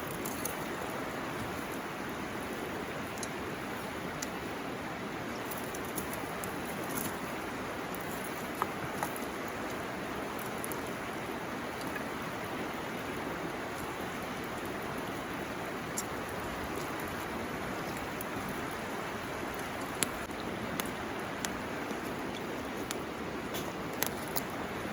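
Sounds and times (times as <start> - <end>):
river running: 0.0 - 24.9
campfire popping: 5.4 - 24.6.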